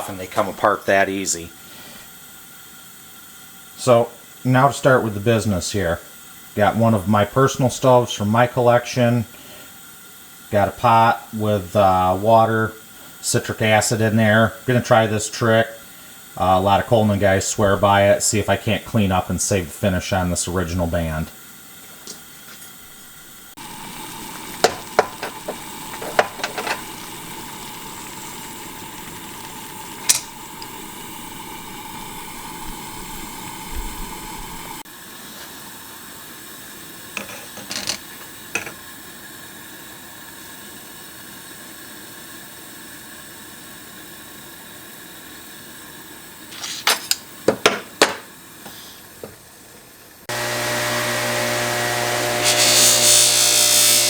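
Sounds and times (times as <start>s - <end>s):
camp stove hissing: 0.0s - 54.0s
power tool humming: 22.8s - 34.8s, 50.3s - 54.0s.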